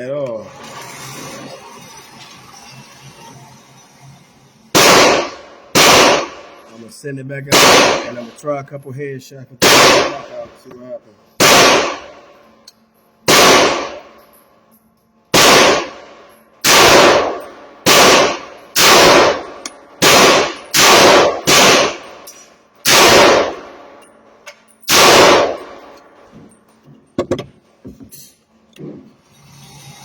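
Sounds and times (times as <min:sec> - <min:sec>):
rifle shots: 0:04.7 - 0:06.6, 0:07.5 - 0:08.4, 0:09.6 - 0:10.4, 0:11.4 - 0:12.3, 0:13.3 - 0:14.2, 0:15.3 - 0:24.0, 0:24.9 - 0:26.0.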